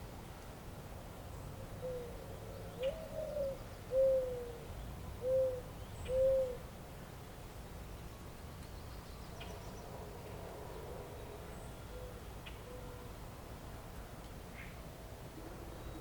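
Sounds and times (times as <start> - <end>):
dove cooing: 1.8 - 4.6, 5.2 - 6.6.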